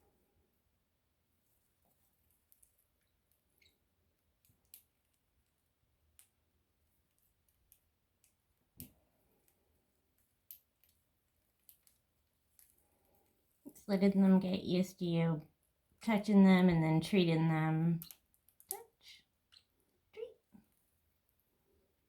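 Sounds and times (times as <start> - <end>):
small faint clicks: 1.9 - 13.4, 17.9 - 18.9.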